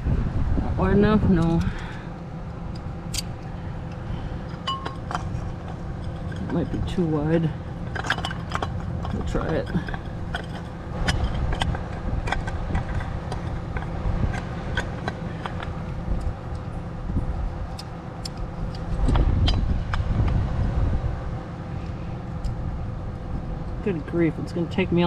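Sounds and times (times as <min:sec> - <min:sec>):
low rumble: 0:00.0 - 0:25.0
pliers clicking on metal: 0:17.7 - 0:18.9.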